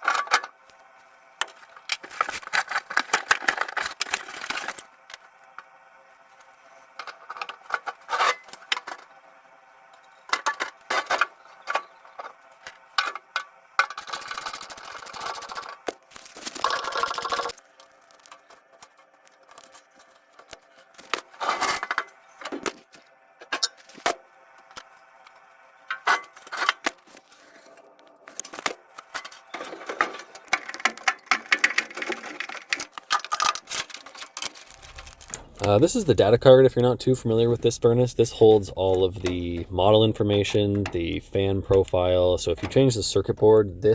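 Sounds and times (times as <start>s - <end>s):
tools and metal parts clinking: 0.0s - 0.6s, 1.4s - 4.9s, 7.0s - 9.1s, 9.9s - 22.7s, 25.9s - 26.9s, 28.4s - 36.1s, 41.8s - 43.6s
faint steady hum: 0.0s - 43.9s.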